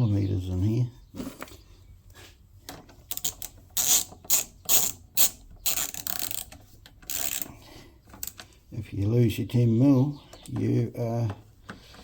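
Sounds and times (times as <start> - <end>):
ratchet wrench clicking: 3.1 - 7.5.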